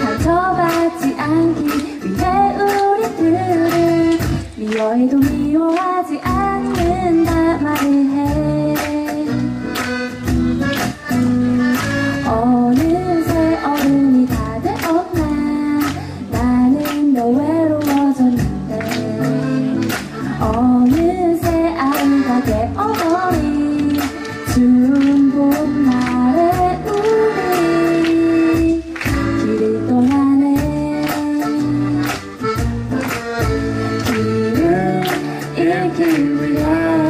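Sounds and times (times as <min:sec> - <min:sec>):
live band playing: 0:00.0 - 0:37.0
person singing: 0:12.3 - 0:32.0, 0:34.0 - 0:37.0.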